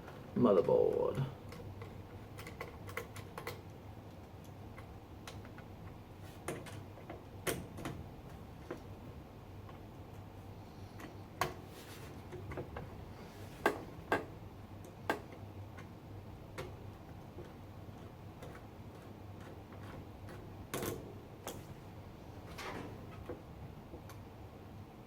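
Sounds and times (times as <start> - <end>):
sharp clicks and light knocks: 0.1 - 8.9, 13.6 - 21.7.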